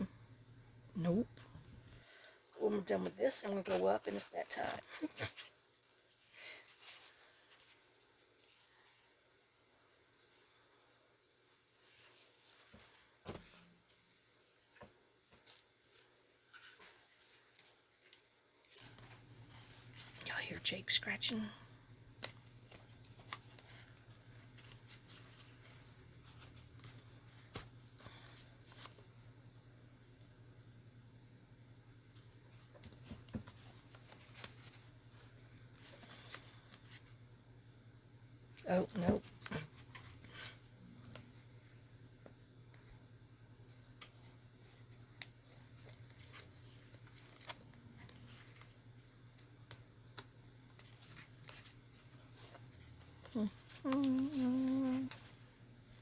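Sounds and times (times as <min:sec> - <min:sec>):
low steady hum: 0:00.0 - 0:56.0
faint scratching and handling noises: 0:01.0 - 0:30.8, 0:31.7 - 0:37.9, 0:38.5 - 0:56.0
paper handling: 0:44.0 - 0:56.0.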